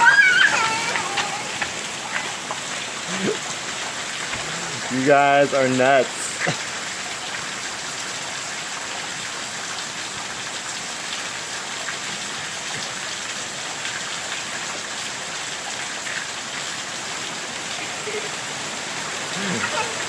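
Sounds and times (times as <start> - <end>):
hail hissing on ground: 0.0 - 20.0
small hail ticks: 0.5 - 2.8.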